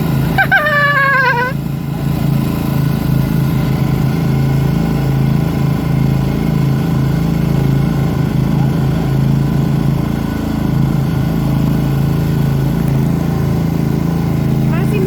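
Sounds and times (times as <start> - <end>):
lawnmower engines idling: 0.0 - 15.0
high wavering call: 0.4 - 1.6.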